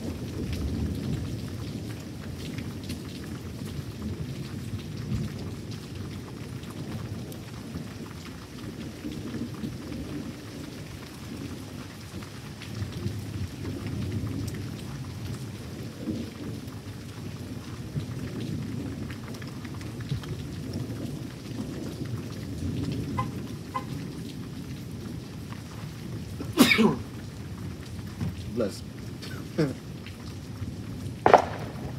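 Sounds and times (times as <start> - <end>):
steady rain falling: 0.0 - 31.9
rolling thunder: 12.2 - 31.9.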